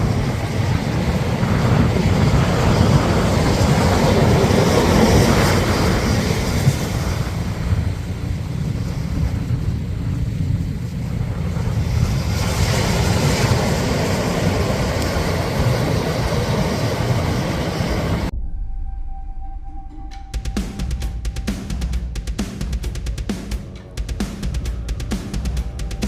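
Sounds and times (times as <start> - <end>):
engine and tyres rumbling: 0.0 - 18.3
wind buffeting microphone: 0.0 - 18.4.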